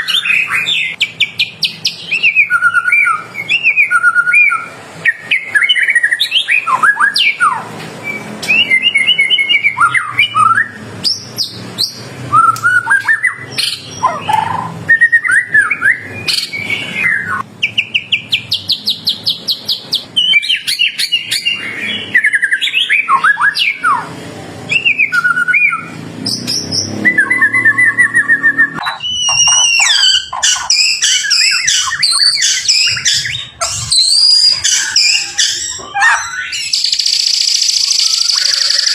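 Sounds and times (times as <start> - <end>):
bird singing whistled phrases: 0.0 - 24.1, 24.7 - 38.9.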